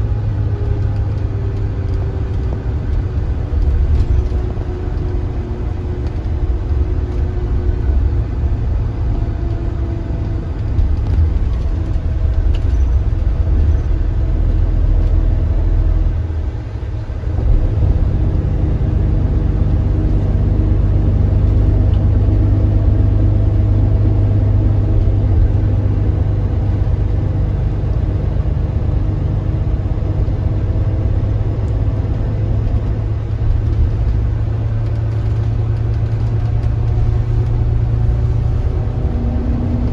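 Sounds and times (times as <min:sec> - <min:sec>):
coach engine low drone: 0:00.0 - 0:39.9.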